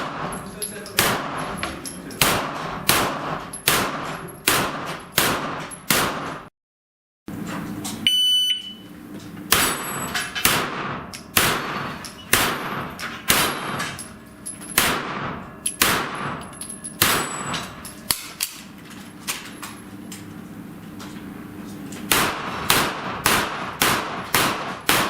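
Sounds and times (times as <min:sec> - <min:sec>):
gunshots: 0:00.0 - 0:00.3, 0:01.0 - 0:01.5, 0:02.2 - 0:06.5, 0:10.4 - 0:13.9, 0:14.8 - 0:16.4, 0:17.0 - 0:17.4, 0:22.1 - 0:25.0
shot timer beep: 0:08.0 - 0:08.9
steel plate ringing: 0:15.5 - 0:18.1.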